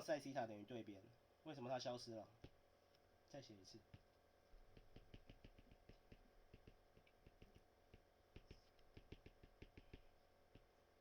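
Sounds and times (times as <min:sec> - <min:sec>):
pen writing clicks and taps: 0:03.9 - 0:10.8.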